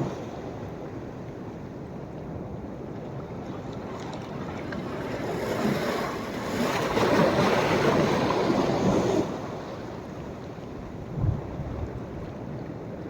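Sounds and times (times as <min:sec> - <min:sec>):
sea waves breaking on beach: 0:03.8 - 0:10.6.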